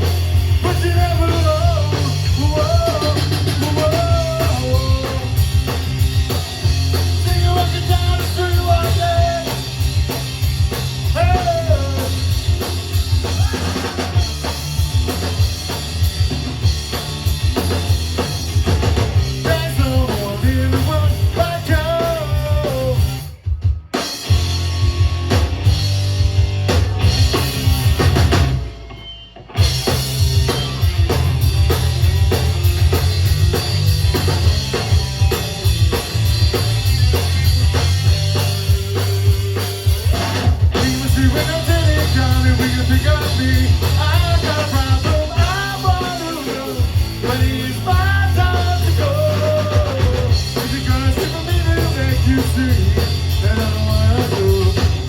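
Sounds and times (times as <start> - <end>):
rock music: 0.0 - 55.0
person singing: 40.8 - 55.0.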